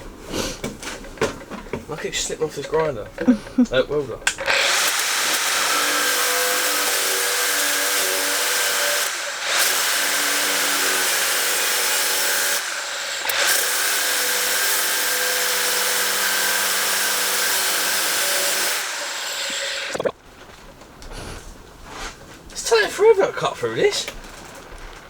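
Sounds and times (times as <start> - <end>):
angle grinder cutting steel: 4.3 - 20.0.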